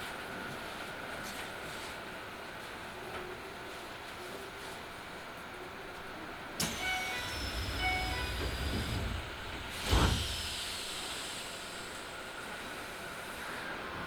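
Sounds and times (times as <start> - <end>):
train doors hissing and whining: 6.6 - 14.0
two-tone door chime: 6.8 - 8.6.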